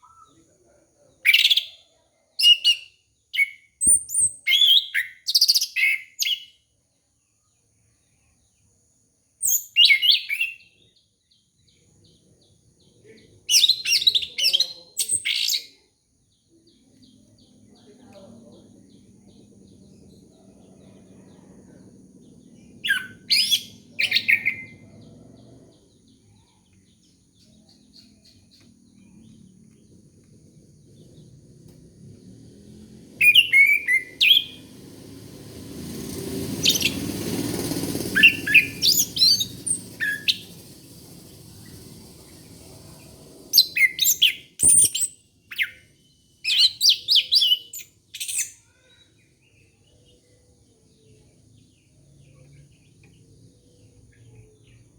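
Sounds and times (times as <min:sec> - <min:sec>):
low rushing noise: 0:17.1 - 0:26.4, 0:28.8 - 0:44.6
thrush singing: 0:30.8 - 0:44.9.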